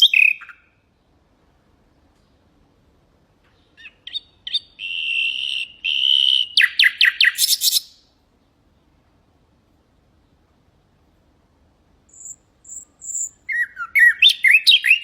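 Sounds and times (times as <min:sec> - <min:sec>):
nightingale singing: 0:00.0 - 0:01.3, 0:03.4 - 0:08.7, 0:12.0 - 0:15.0.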